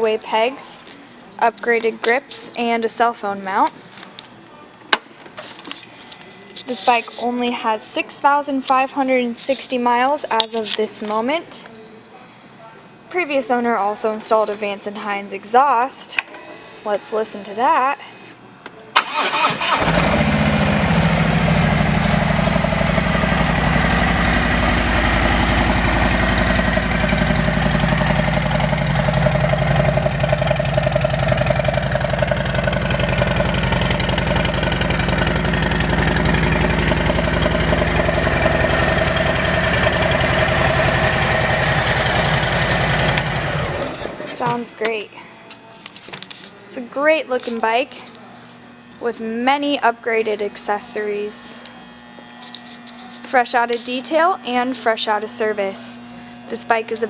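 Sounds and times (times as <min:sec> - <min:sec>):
motorcycle engine idling: 0:19.1 - 0:44.0.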